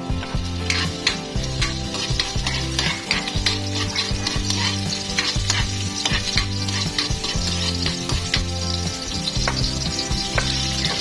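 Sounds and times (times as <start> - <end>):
ginger sizzling in hot oil: 0.0 - 11.0
spatula scraping and tapping a wok: 0.0 - 11.0.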